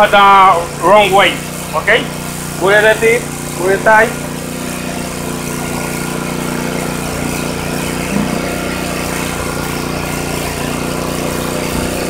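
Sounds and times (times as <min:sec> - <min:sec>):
paint sprayer humming: 0:00.0 - 0:12.0
brief knock: 0:08.1 - 0:08.6.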